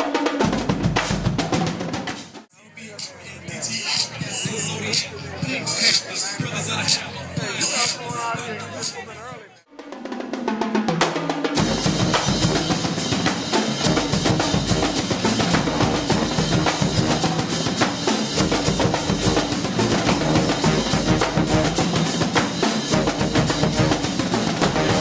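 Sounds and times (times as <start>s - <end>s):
drums playing fast rhythm: 0.0s - 2.5s, 9.7s - 25.0s.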